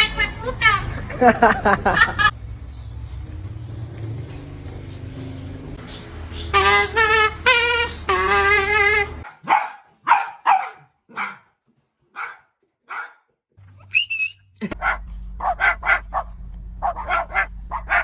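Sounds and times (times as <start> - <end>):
dog barking: 9.2 - 11.5, 12.2 - 18.0.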